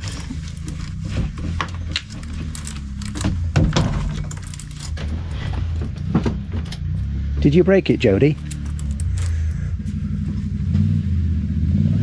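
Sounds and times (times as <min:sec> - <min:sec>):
knocks and clicks: 0:00.0 - 0:07.0, 0:08.3 - 0:09.4
low engine hum: 0:00.0 - 0:12.0.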